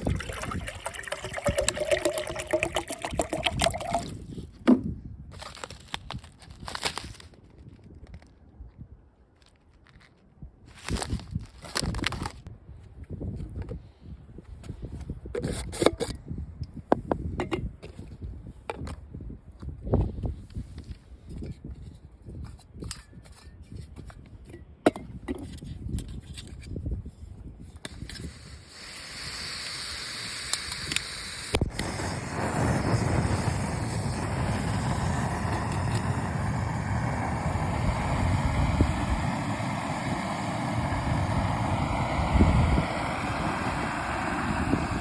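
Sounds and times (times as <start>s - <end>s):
wind buffeting microphone: 0.0s - 5.4s, 10.4s - 28.6s, 31.6s - 45.0s
stove burner hissing: 28.0s - 45.0s.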